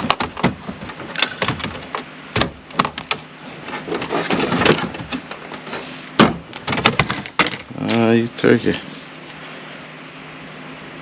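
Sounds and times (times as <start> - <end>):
rubbing and rustling: 0.0 - 7.7.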